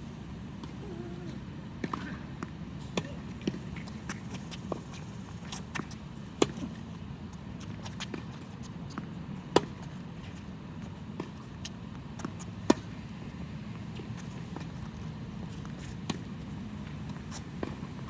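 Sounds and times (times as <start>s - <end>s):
tennis ball hit with rackets: 9.5s - 9.8s, 12.2s - 13.0s.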